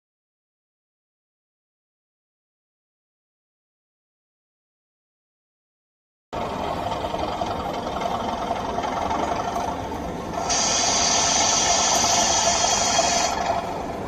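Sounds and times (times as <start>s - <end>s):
model train mechanical hum: 6.4s - 14.0s
loud hiss: 10.4s - 14.0s.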